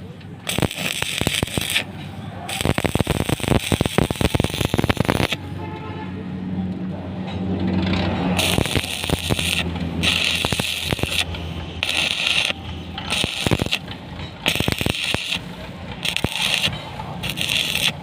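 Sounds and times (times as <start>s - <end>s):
welding set low hum: 0.0s - 5.5s, 8.3s - 18.0s
arc welding crackling hiss: 0.5s - 1.9s, 2.5s - 5.4s, 8.4s - 13.8s, 14.5s - 15.4s, 16.0s - 18.0s
sharp clicks: 2.5s - 5.4s, 8.4s - 15.4s.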